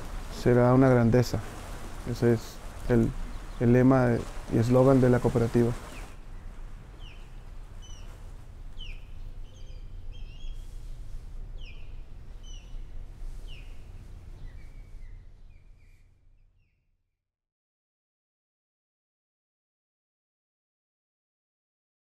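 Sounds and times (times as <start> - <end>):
low outdoor rumble: 0.0 - 16.6
bird chirps: 5.8 - 8.2, 8.8 - 16.8.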